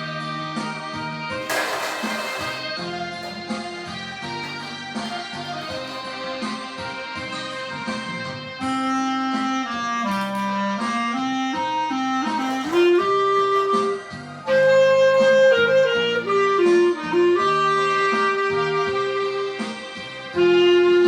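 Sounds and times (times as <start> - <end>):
musical accompaniment: 0.0 - 21.0
clarinet playing slow melody: 8.5 - 21.0.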